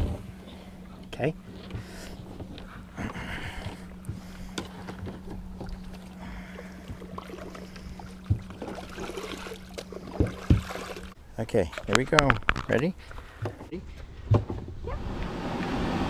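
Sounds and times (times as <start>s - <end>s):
low hum: 0.0s - 16.0s
water lapping and trickling: 0.0s - 16.0s
knocks against boat hull: 10.2s - 10.8s.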